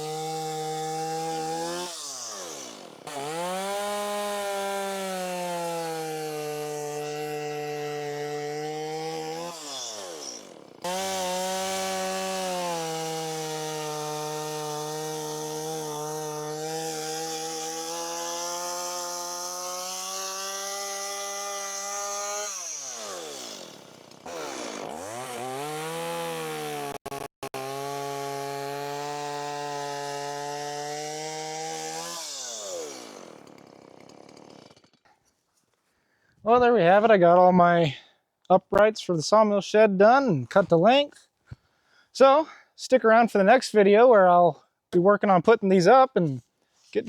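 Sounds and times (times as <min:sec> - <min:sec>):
chainsaw cutting timber: 0:00.0 - 0:35.4.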